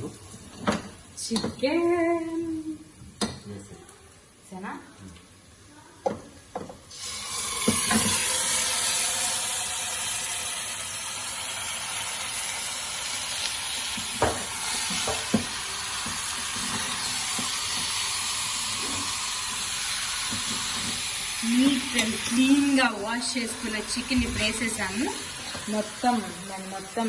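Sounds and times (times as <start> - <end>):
chicken sizzling in hot oil: 6.9 - 27.0
utensils knocking against pan: 20.2 - 22.4.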